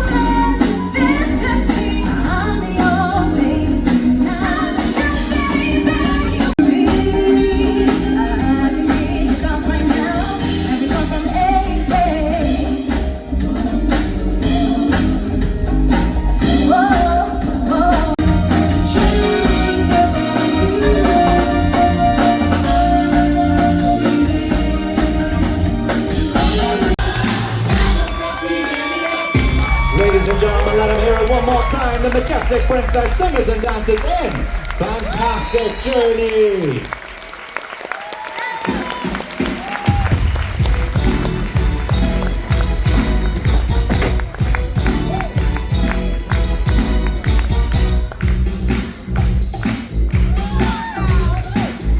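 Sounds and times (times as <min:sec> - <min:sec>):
singers over pop music: 0:00.0 - 0:20.6, 0:21.6 - 0:32.4.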